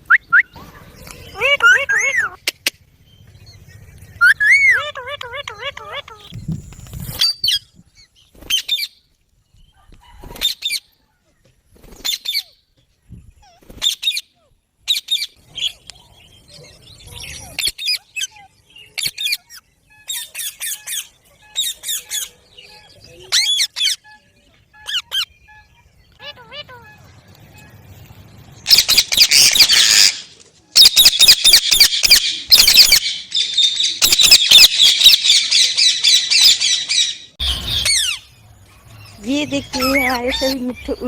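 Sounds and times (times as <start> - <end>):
parakeet squawking: 4.2 - 6.3, 26.2 - 27.1, 28.7 - 30.2, 30.8 - 38.2, 39.6 - 41.0.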